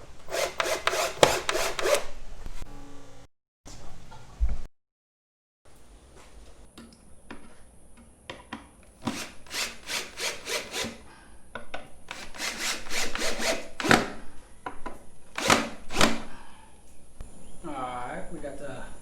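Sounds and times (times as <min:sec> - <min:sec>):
hand saw cutting wood: 0:00.0 - 0:02.1, 0:09.0 - 0:11.1, 0:12.1 - 0:14.2, 0:15.3 - 0:16.4.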